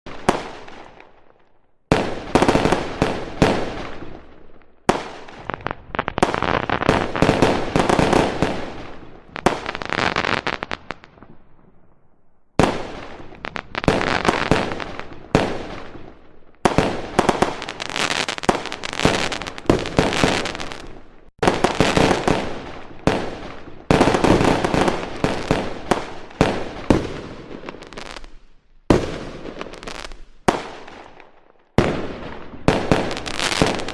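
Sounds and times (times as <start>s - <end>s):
fireworks bangs and crackling: 0.1s - 33.9s.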